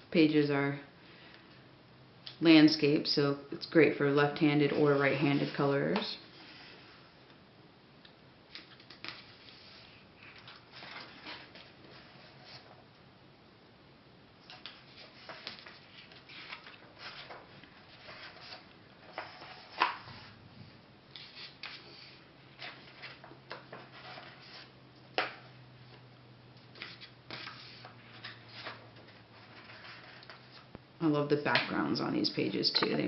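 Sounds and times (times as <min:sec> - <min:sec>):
paper pages turning: 0:04.7 - 0:07.0, 0:08.5 - 0:12.8, 0:14.5 - 0:20.4, 0:21.1 - 0:25.3, 0:26.7 - 0:30.7.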